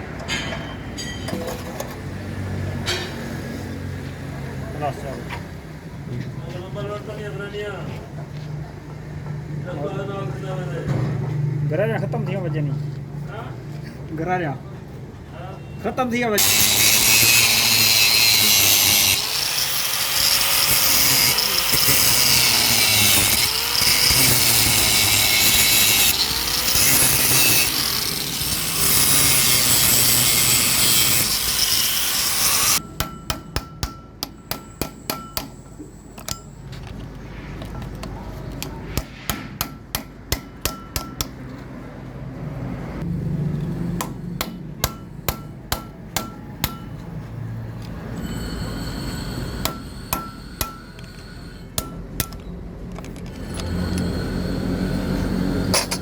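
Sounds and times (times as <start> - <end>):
power grinder on metal: 16.4 - 32.8, 53.3 - 56.0
hammer blows on metal: 48.6 - 52.4.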